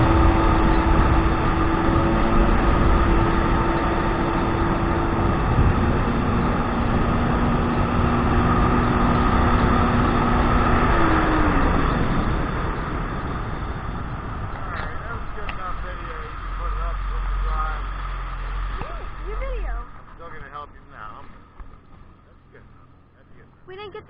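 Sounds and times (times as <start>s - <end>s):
wind and water rushing: 0.0s - 19.4s
jet ski engine running: 0.0s - 24.0s.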